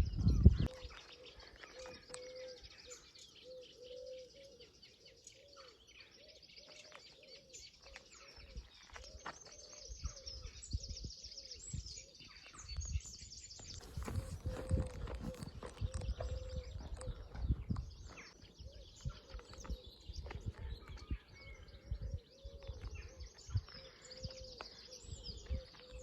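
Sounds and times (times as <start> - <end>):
small birds chirping and trilling: 0.0 - 26.0
pigeon cooing: 0.6 - 4.7, 13.8 - 17.7.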